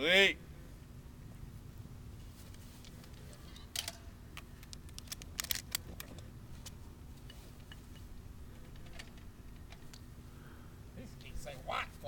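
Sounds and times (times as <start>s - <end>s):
shotgun metallic clicks: 3.7s - 6.1s.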